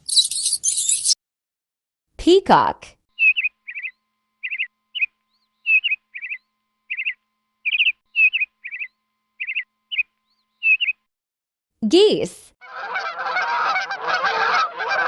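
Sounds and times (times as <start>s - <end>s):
bird chirping: 0.0s - 1.2s, 3.2s - 11.1s.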